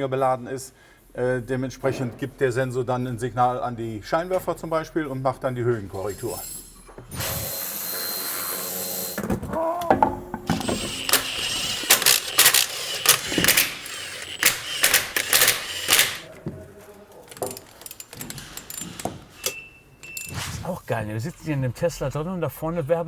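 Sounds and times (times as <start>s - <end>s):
tools and metal parts clattering: 5.8s - 7.6s, 8.6s - 20.4s.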